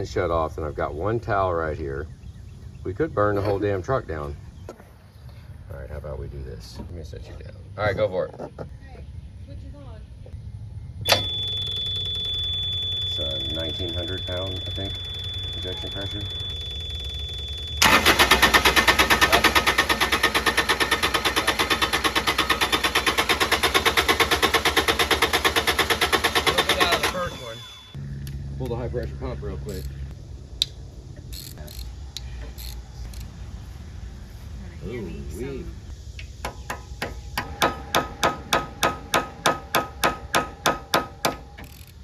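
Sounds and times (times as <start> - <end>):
diesel engine cranking on starter: 11.1 - 28.0
sharp metallic knocks: 36.2 - 41.7.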